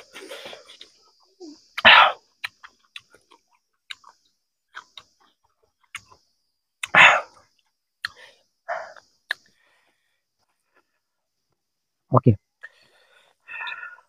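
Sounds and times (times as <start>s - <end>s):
person chewing: 1.7s - 7.3s, 8.0s - 9.5s.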